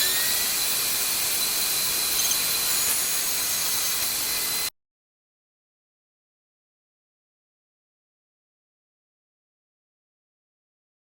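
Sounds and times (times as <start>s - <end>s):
power tool whining: 0.0s - 4.7s.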